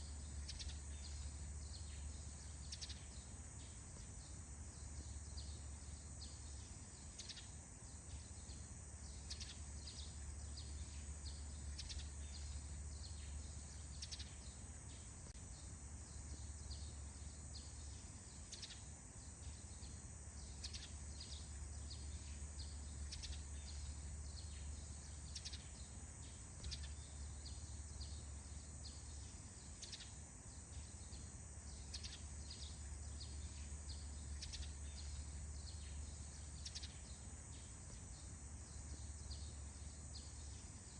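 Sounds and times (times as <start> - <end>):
bird chirps: 0.0 - 40.9
high insect-like hiss: 0.0 - 40.9.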